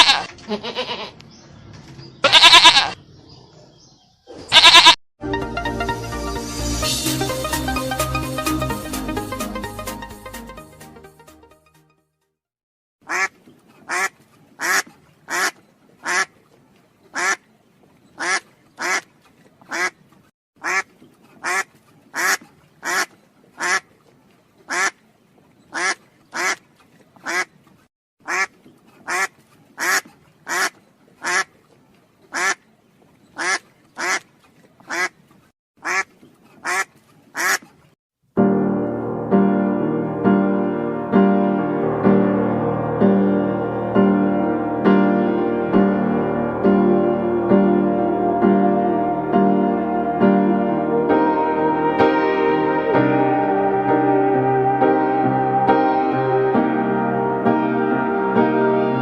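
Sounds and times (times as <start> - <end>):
piano music: 5.2 - 12.1, 38.4 - 59.0.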